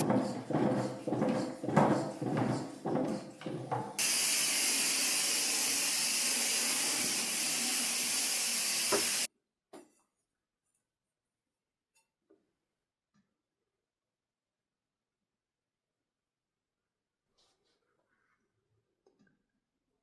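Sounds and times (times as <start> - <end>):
loud steady hiss: 4.0 - 9.3.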